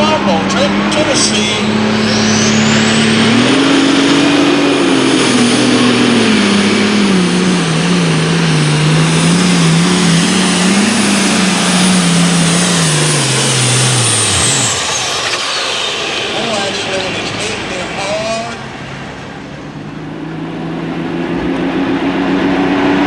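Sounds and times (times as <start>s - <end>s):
tractor engine under full power: 0.0s - 23.0s
high turbo whistle: 1.0s - 7.6s.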